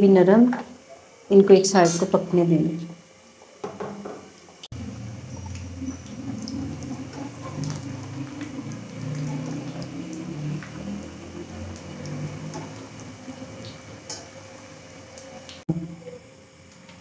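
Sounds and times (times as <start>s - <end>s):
dough bubbling and sizzling in oil: 4.5s - 15.7s.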